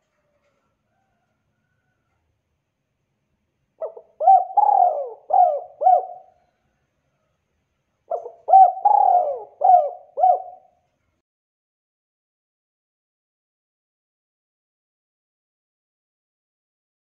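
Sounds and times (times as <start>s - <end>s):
dove cooing: 3.8s - 6.5s, 8.1s - 10.8s.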